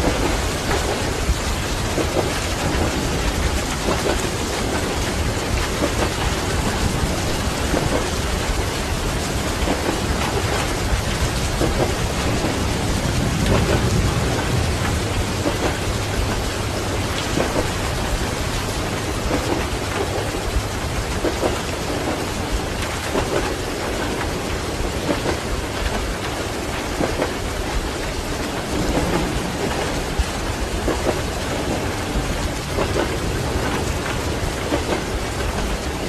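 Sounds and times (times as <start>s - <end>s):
heavy rain: 0.0s - 36.0s
rumbling thunder: 0.0s - 36.0s.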